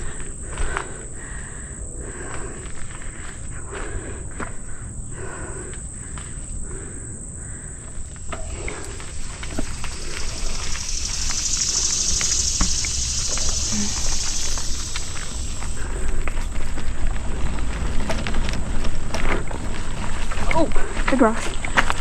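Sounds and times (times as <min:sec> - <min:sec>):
high-pitched insect chorus: 0:00.0 - 0:22.0
mountain bike rolling on dirt: 0:07.6 - 0:22.0.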